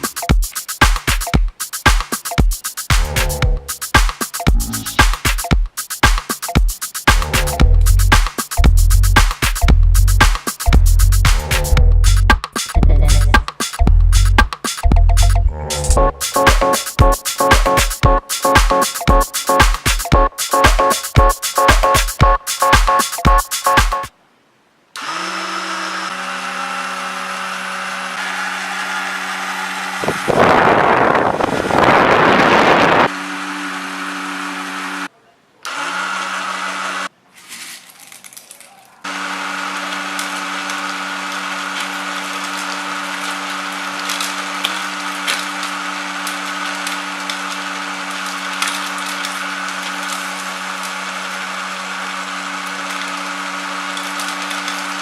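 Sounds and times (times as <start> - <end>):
loud rushing noise: 30.0 - 33.1.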